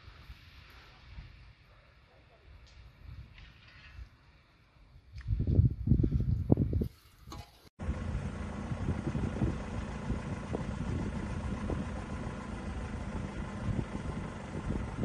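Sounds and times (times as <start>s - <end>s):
engine-like hum with rumble: 7.8s - 15.0s.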